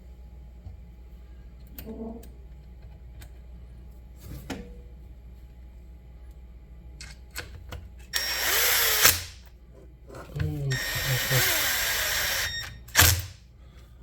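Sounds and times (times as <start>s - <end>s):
power drill running: 8.2s - 9.4s, 10.7s - 13.3s.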